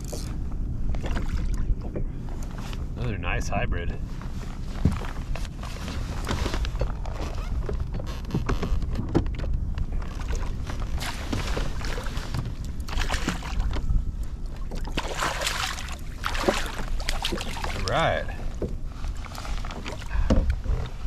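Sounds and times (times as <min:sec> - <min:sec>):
wind rumble on microphone: 0:00.0 - 0:21.0
water splashing: 0:10.1 - 0:20.1.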